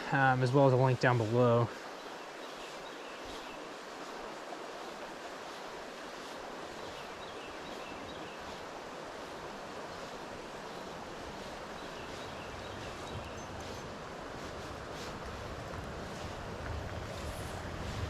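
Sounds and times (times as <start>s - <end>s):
river water flowing: 0.0s - 18.0s
wind rumble on microphone: 5.9s - 18.0s.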